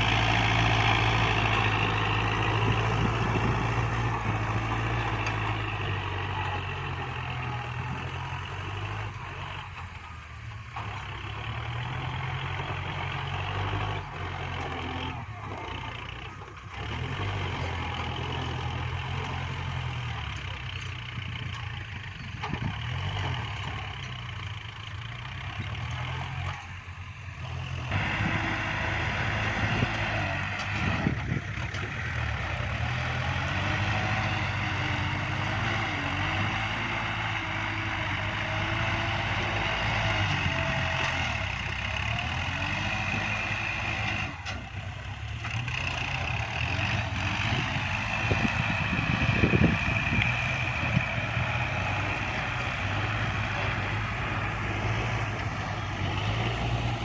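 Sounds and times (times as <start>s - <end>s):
drivetrain whine: 0.0s - 57.0s
tractor diesel engine under load: 0.0s - 57.0s.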